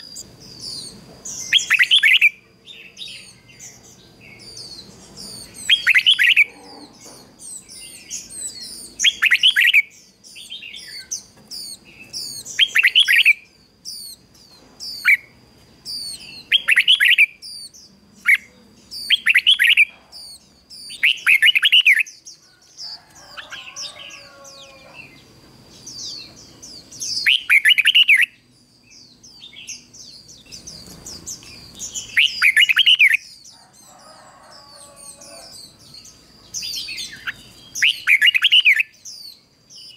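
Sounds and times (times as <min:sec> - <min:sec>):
bird singing warbled phrases: 0:00.0 - 0:39.9
high chirping: 0:00.0 - 0:39.9.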